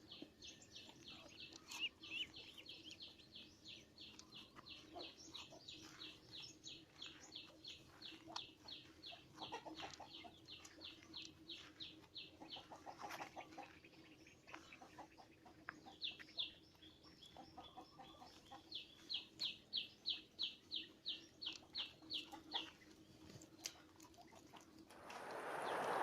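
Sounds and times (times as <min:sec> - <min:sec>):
songbird calling: 0:00.0 - 0:22.8
rushing noise: 0:25.0 - 0:26.0.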